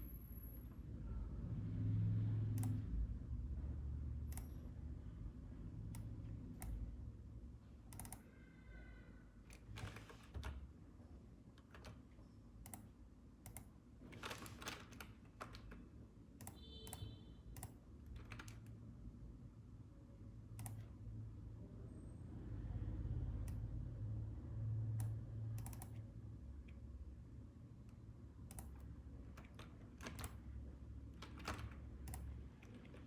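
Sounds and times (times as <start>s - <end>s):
computer keyboard keystrokes: 2.6s - 2.8s, 7.9s - 8.2s, 11.6s - 18.8s, 20.6s - 20.9s, 25.0s - 26.1s, 28.4s - 30.4s, 31.1s - 33.0s.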